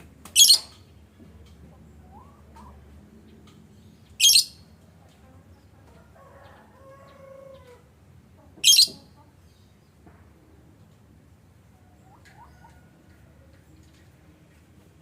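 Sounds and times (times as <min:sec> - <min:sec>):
drawn-out bird call: 0:04.2 - 0:04.6, 0:08.6 - 0:09.2.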